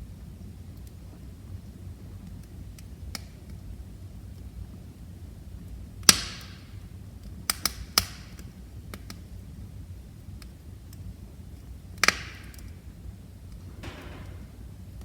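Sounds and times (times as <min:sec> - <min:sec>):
fire crackling and popping: 0:07.2 - 0:09.2
fire rumbling: 0:12.4 - 0:15.0.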